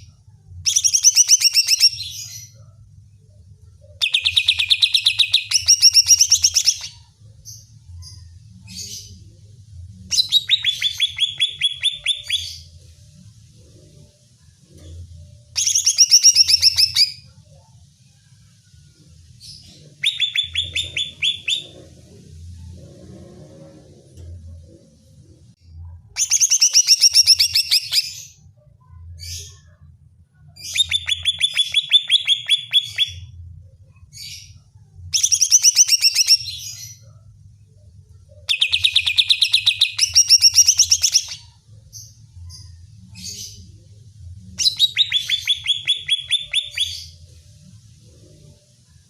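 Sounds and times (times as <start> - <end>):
bird singing rapid notes: 19.9 - 21.8, 44.6 - 47.2.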